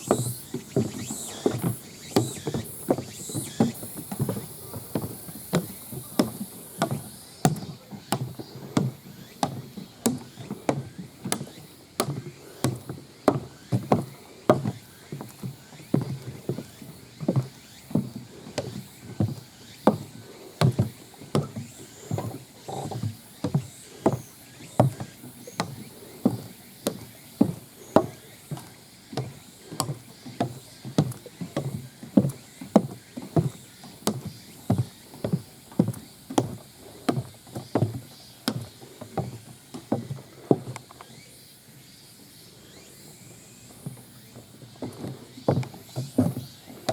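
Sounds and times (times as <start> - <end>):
footsteps on trail: 0.0 - 41.3, 43.5 - 46.9.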